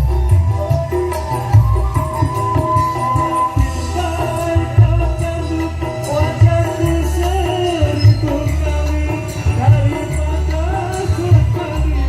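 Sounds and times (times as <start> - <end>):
heavy pulsing bass beat: 0.0 - 12.0
music with singing voice: 0.0 - 12.0.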